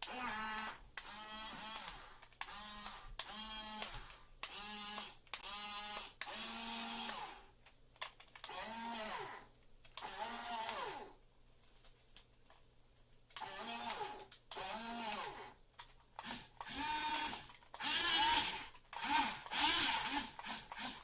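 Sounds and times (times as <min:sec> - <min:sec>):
small electric motors whirring: 0:00.1 - 0:07.4, 0:16.2 - 0:21.0.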